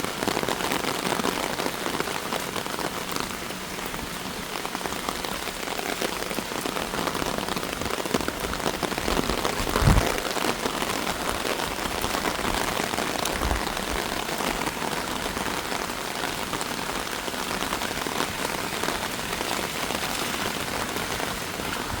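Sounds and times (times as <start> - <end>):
rain on hard surfaces: 0.0 - 22.0
low thump: 9.6 - 10.2.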